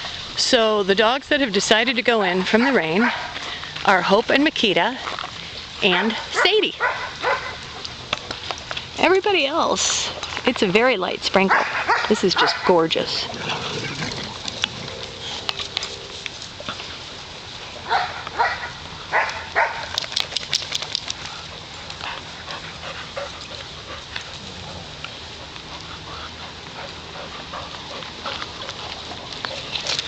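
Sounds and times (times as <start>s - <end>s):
background hiss: 0.0s - 30.0s
dogs barking: 2.4s - 3.4s, 5.9s - 8.0s, 11.4s - 13.2s, 17.8s - 20.0s.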